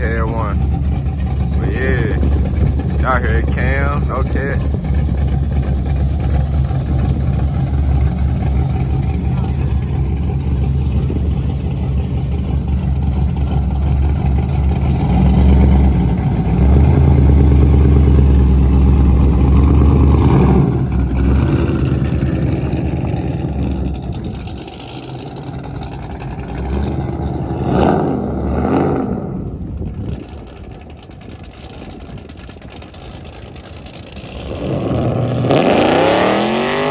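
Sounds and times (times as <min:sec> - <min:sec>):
loud car exhaust idling: 0:00.0 - 0:28.5
engine revving: 0:00.0 - 0:29.6, 0:34.1 - 0:36.9.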